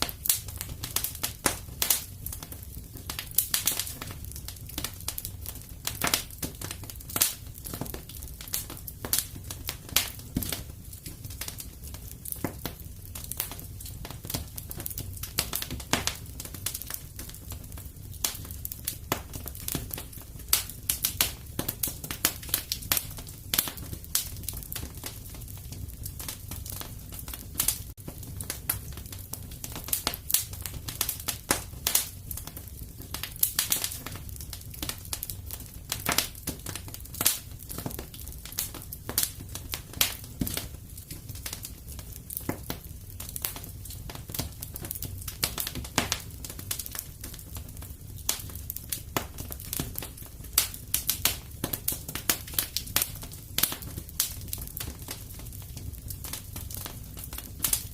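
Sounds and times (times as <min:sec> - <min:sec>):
fire crackling and popping: 0:00.0 - 0:57.9.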